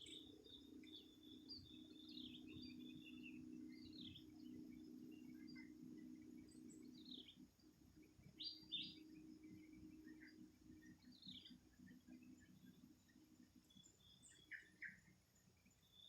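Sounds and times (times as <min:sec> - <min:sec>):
birds chirping: 0:00.0 - 0:07.4
low steady hum: 0:00.0 - 0:16.0.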